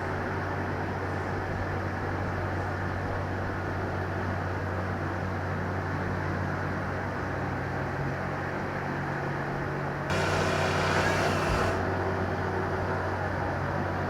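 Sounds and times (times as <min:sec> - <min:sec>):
heavy machinery engine humming: 0:10.1 - 0:12.0.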